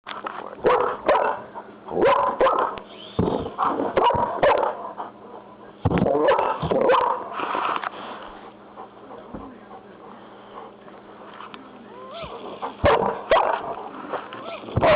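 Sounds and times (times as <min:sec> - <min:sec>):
dog barking excitedly: 0:00.6 - 0:02.9, 0:03.5 - 0:05.4, 0:06.0 - 0:07.3, 0:12.2 - 0:14.9.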